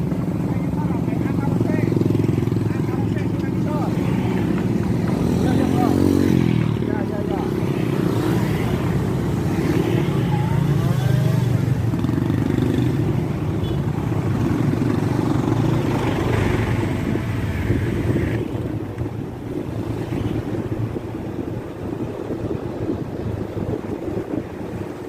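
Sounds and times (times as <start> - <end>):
motorcycle engines running: 0.0 - 25.0
road traffic: 0.0 - 25.0.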